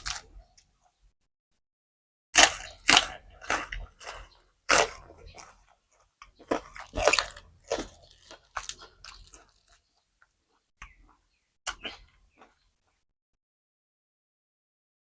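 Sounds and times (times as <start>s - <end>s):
person chewing crunchy food: 0.0s - 0.7s, 2.4s - 12.7s.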